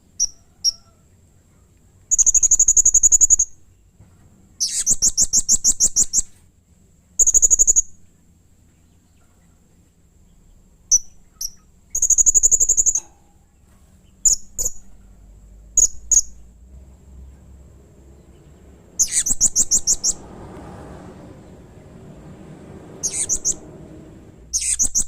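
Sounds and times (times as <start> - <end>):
parrot sharp chirps: 2.1 - 3.6, 4.6 - 6.3, 10.9 - 13.2, 14.2 - 14.8, 15.8 - 16.4, 19.0 - 20.2, 23.0 - 23.6, 24.5 - 25.0.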